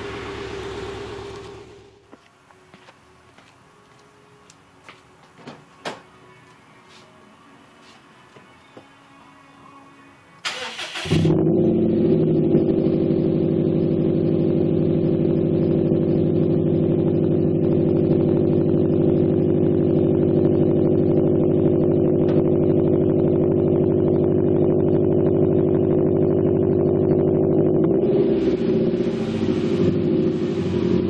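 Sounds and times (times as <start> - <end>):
car engine idling: 0.0 - 2.1, 10.7 - 31.0
engine starter cranking: 10.4 - 11.3.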